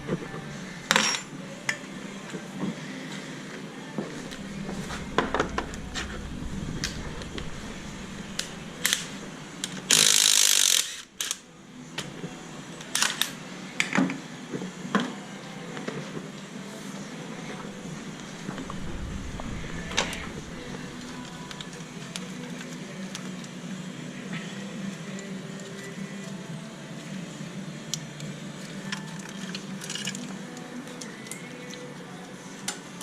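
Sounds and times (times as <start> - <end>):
loud rush of noise: 0.0 - 3.0, 3.7 - 11.2, 17.2 - 22.4.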